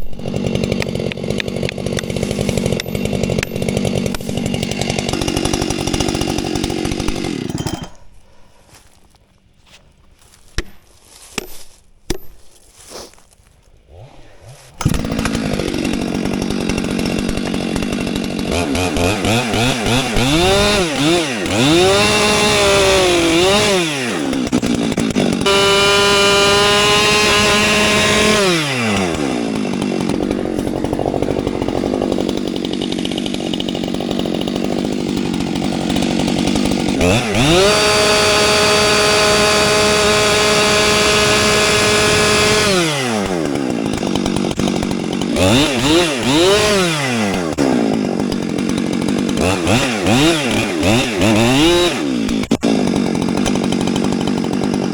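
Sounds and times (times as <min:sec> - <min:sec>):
chainsaw idling and revving: 0:00.0 - 0:11.5, 0:13.7 - 0:54.9.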